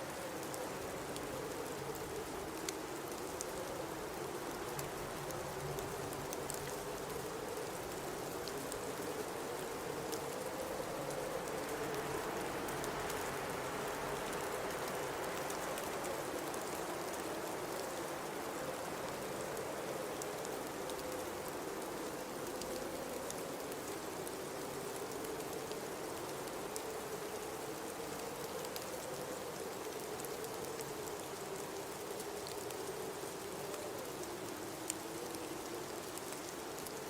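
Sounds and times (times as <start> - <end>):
faint ticks: 14.0 - 37.0.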